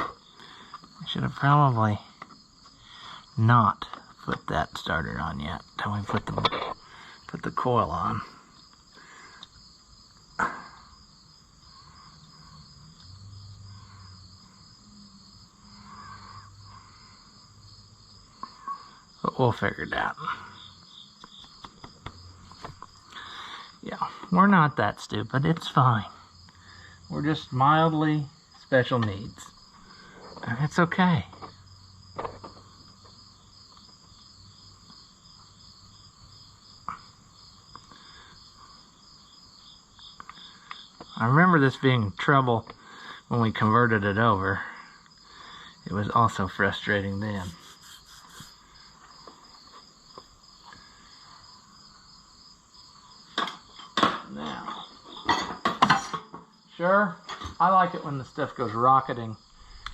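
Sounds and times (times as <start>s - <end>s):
crickets chirping: 0.0s - 59.9s
faint ticks: 20.8s - 22.9s, 40.0s - 41.2s.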